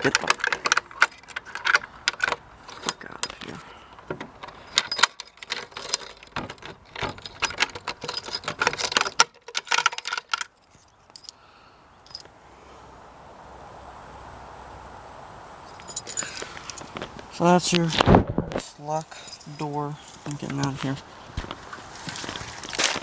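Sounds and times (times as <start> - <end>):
keys jangling: 0.0 - 3.4, 4.4 - 11.4, 12.1 - 12.3, 15.7 - 17.0, 19.1 - 20.8
low steady hiss: 0.0 - 23.0.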